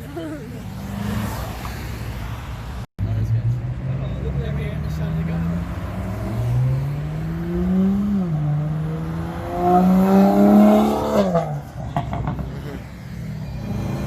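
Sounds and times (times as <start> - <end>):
car accelerating hard: 3.8 - 12.8.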